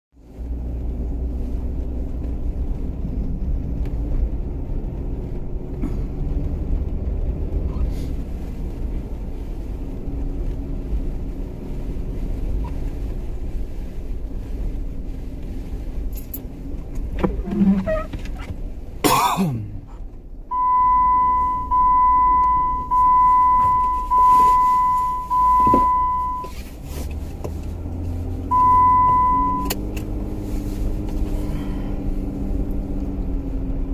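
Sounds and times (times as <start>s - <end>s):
engine low rumble: 0.1s - 33.9s
high electronic beeps: 20.5s - 26.5s, 28.5s - 29.7s.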